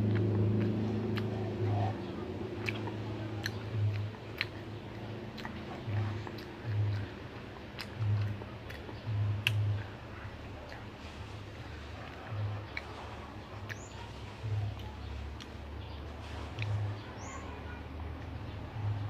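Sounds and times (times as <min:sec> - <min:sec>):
mouth clicks and lip smacks: 0:00.0 - 0:17.4
child chewing: 0:00.0 - 0:19.0.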